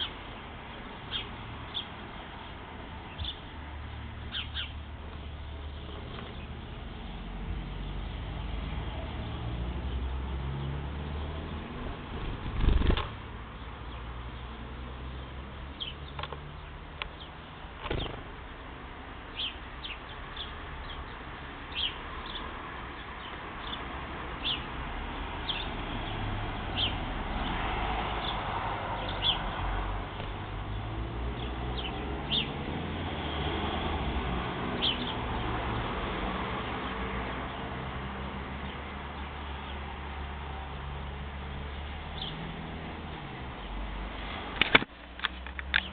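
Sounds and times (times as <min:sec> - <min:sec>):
birds chirping: 0:00.0 - 0:32.8, 0:34.7 - 0:35.7, 0:40.7 - 0:43.9, 0:45.2 - 0:45.9
loud thump: 0:17.8 - 0:18.4.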